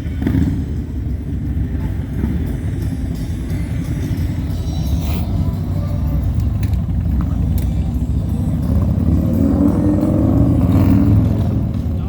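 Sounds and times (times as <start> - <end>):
motorcycle engines rumbling: 0.0 - 12.0.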